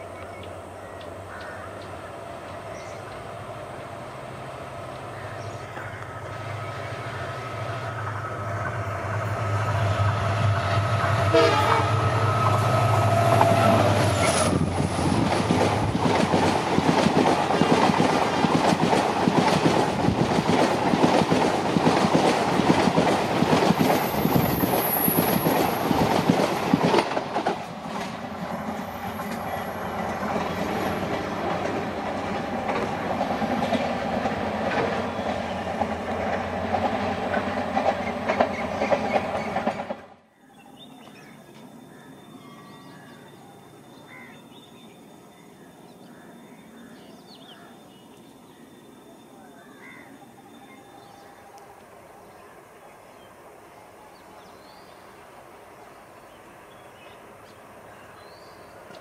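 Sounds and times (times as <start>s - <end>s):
train horn: 10.8s - 14.6s
train wheels clattering over rails: 12.2s - 40.2s.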